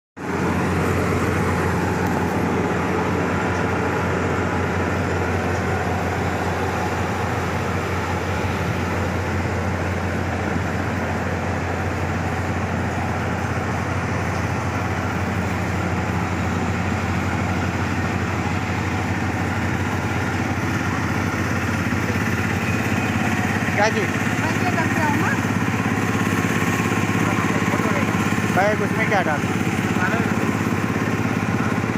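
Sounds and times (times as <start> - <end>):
low engine hum: 0.2 - 31.9
vehicle road noise rush: 0.2 - 31.9.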